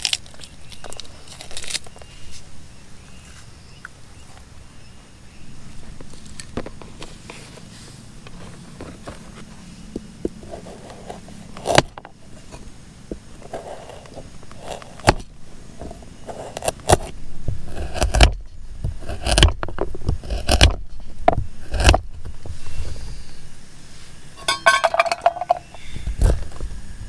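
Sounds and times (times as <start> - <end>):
rustling: 0.0 - 3.5, 5.7 - 15.2.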